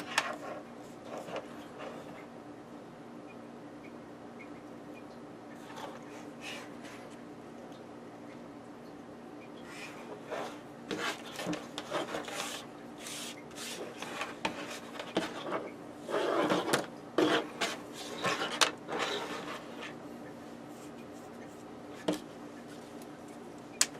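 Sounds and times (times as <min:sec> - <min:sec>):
small objects rubbing and scraping: 0:10.2 - 0:20.0.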